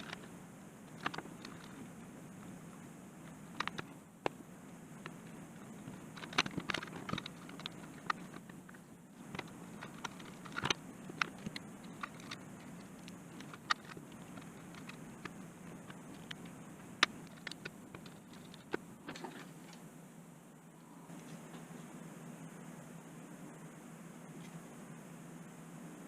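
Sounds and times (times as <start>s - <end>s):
steady low hum: 0.0s - 26.0s
hands clicking on plastic parts: 3.5s - 4.4s, 5.8s - 19.4s.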